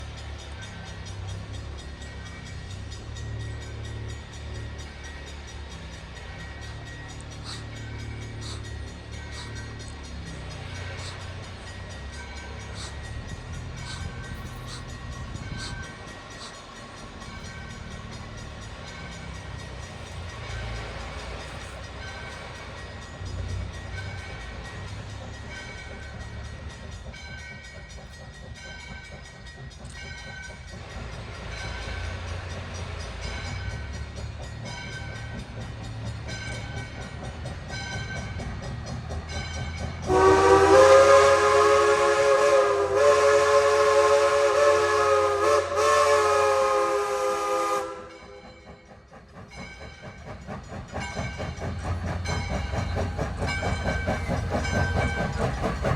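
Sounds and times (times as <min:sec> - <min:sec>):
locomotive bell ringing: 0:00.0 - 0:55.9
steam locomotive rumble: 0:00.0 - 0:55.9
steam whistle blast: 0:40.1 - 0:48.4.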